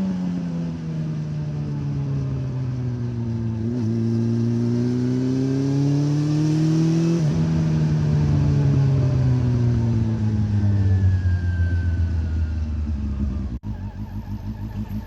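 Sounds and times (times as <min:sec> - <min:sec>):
motorcycle engine: 0:00.0 - 0:15.0.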